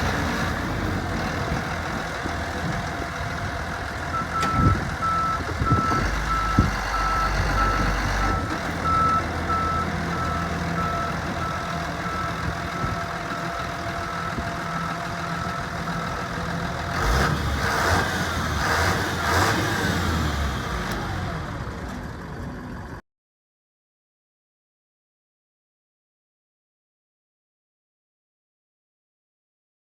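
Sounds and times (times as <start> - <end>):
diesel truck engine running: 0.0 - 23.0.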